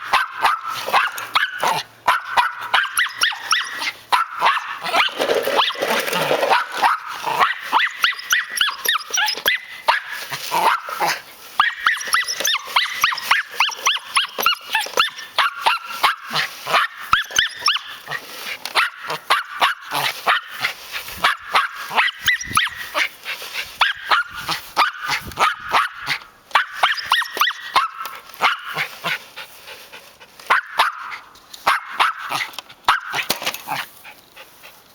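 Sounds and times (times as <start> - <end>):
dog barking: 0.0 - 5.1, 6.5 - 17.9, 18.7 - 20.5, 23.8 - 28.9, 30.5 - 33.3.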